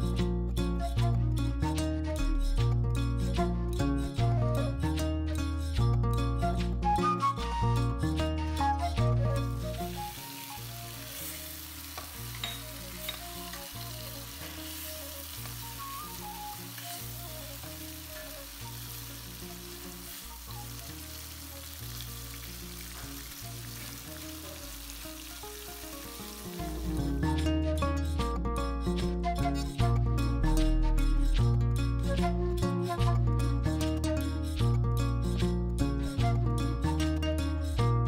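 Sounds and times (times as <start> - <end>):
soft music: 0.0 - 38.0
prawns sizzling in a pan: 9.5 - 27.4.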